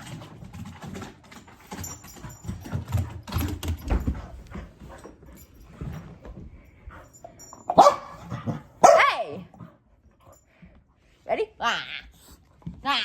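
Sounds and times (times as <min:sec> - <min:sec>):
dog paws scrabbling on floor: 0:00.0 - 0:08.7.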